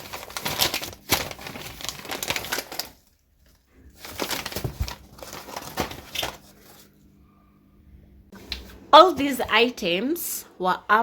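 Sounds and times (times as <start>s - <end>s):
crinkling and rustling: 0.0s - 7.0s.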